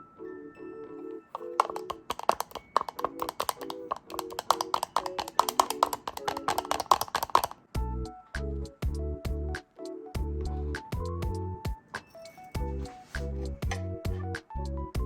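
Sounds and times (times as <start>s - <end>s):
background music: 0.0s - 15.0s
rapid light taps: 1.4s - 7.6s.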